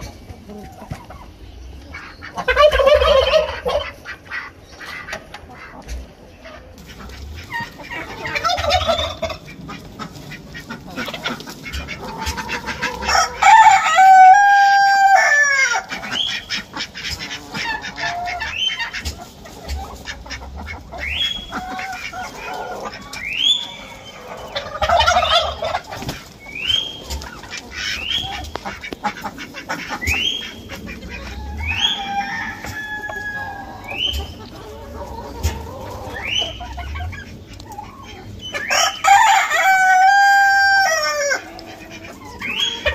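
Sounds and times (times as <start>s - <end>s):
chickens clucking: 0.0s - 42.9s
rooster crowing: 13.0s - 15.8s, 31.2s - 34.0s, 38.6s - 41.5s.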